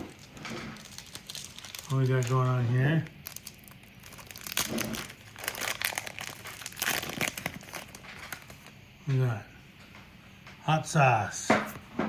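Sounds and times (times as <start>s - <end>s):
plastic wrapper crinkling: 0.0s - 8.8s.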